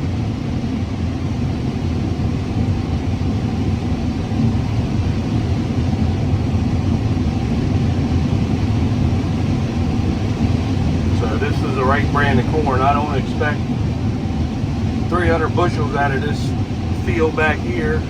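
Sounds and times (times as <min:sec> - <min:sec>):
combine harvester engine rumble: 0:00.0 - 0:18.0.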